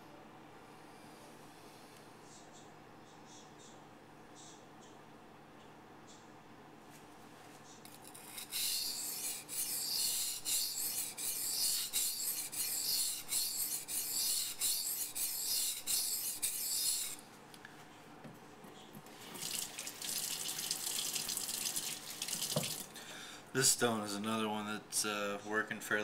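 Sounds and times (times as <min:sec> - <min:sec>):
knife scraping on whetstone: 0:07.9 - 0:17.2.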